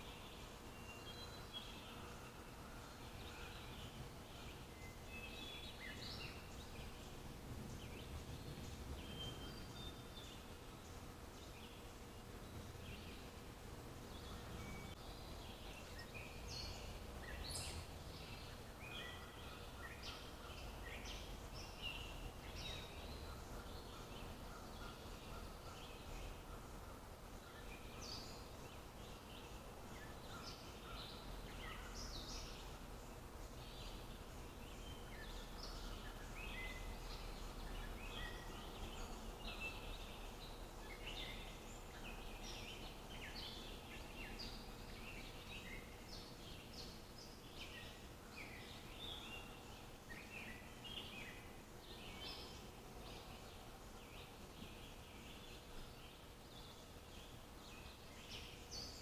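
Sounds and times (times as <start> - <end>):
faint low background rumble: 0.0 - 59.0
birds chirping and whistling: 7.7 - 10.4.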